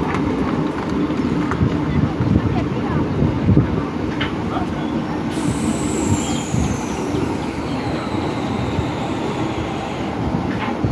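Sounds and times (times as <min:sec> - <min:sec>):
train rumbling on rails: 0:00.0 - 0:10.9
high whine falling in pitch: 0:05.3 - 0:10.9.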